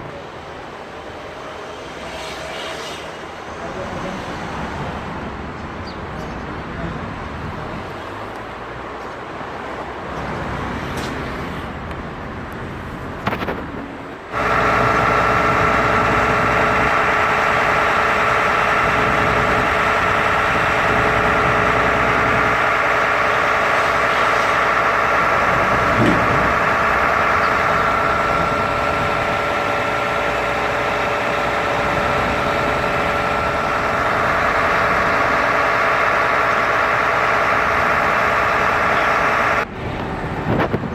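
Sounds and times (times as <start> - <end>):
street traffic noise: 0.0 - 40.9
machine engine humming and whining: 10.2 - 40.9.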